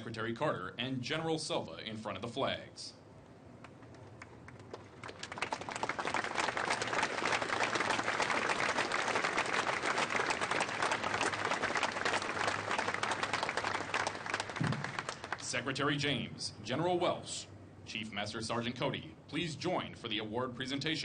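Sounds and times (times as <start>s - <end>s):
audience applauding: 4.2s - 15.4s.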